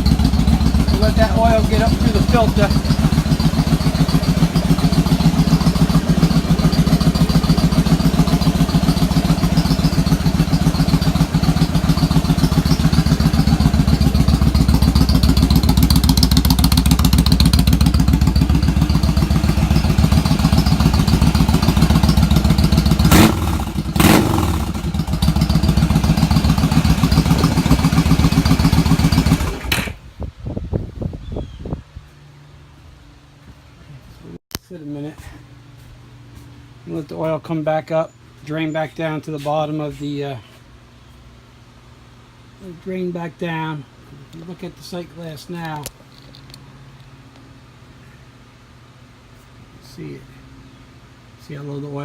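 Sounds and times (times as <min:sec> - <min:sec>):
engine throttle blips: 0:00.0 - 0:30.0
motorcycle engine idling: 0:00.0 - 0:30.0.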